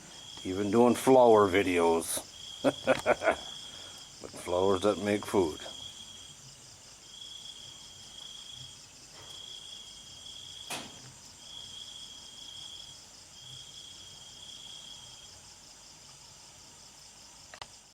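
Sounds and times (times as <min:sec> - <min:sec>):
insects chirring with trill: 0:00.0 - 0:17.9
sharp click: 0:10.7 - 0:11.0.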